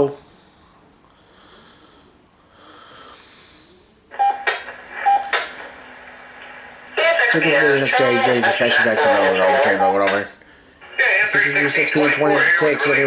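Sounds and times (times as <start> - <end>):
radio hiss: 3.5 - 13.0
radio squelch clicks: 4.1 - 13.0.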